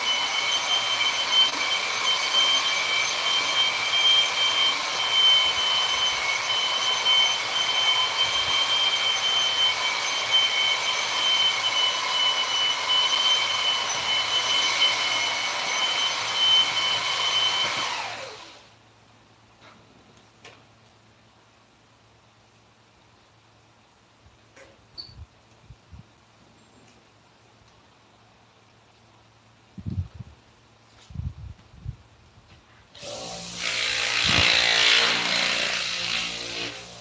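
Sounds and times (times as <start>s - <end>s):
electric power tool whining: 0.0s - 18.7s, 33.0s - 37.0s.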